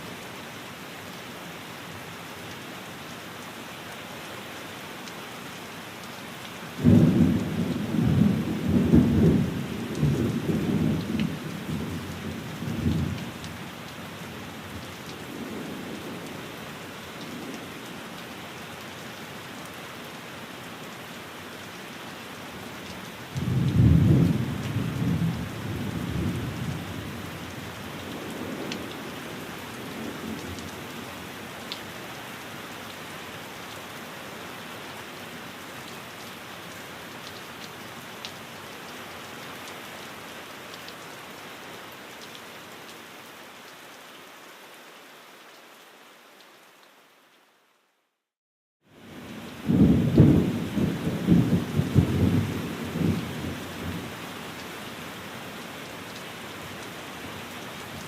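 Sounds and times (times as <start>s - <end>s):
steady rain: 0.0s - 58.0s
thunder rumbling: 49.6s - 54.0s.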